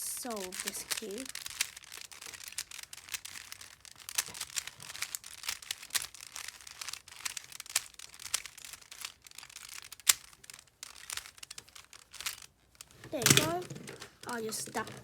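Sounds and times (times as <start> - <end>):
puzzle cube clicking and rattling: 0.0 - 15.0
puzzle cube sharp snap: 13.1 - 15.0.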